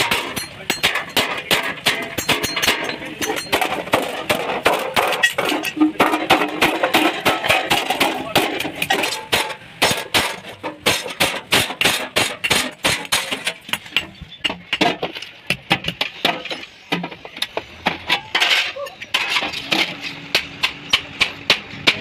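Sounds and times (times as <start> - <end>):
hammer striking sheet metal: 0.0 - 14.1.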